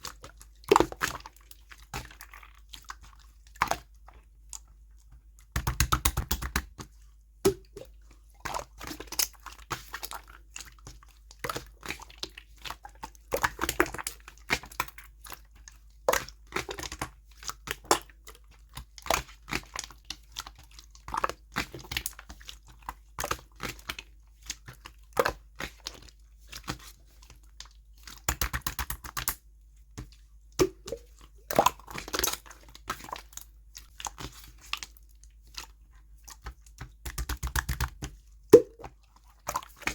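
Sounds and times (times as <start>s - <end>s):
slime clicking and popping: 5.6s - 6.7s, 28.2s - 29.4s, 36.8s - 38.9s.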